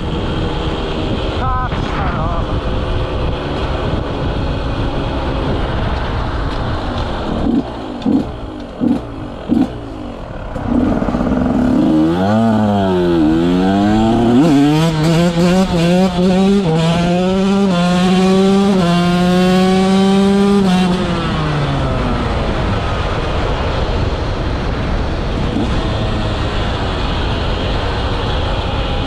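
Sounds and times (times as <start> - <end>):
motocross engine revving: 7.1 - 22.0.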